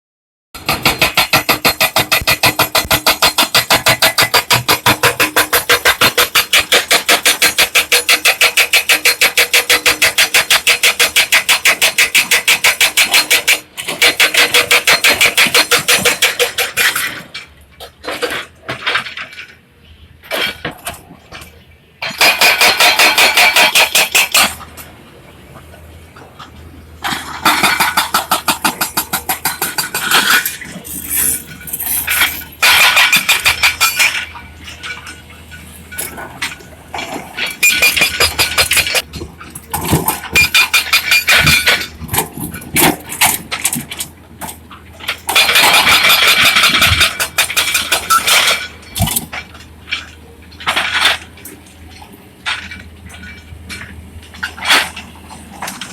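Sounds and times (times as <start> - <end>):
excavator pulsing machine sound: 0.6 - 19.1, 20.2 - 55.9.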